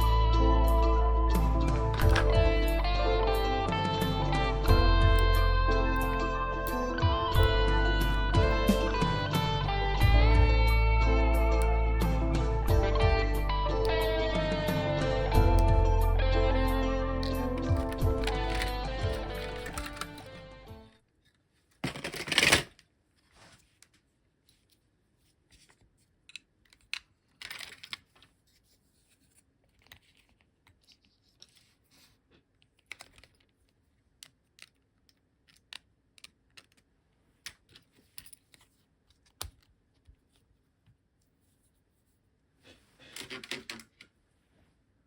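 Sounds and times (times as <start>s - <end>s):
small parts clicking and tapping: 17.2s - 20.6s, 25.6s - 28.3s, 32.6s - 40.5s, 43.2s - 44.1s.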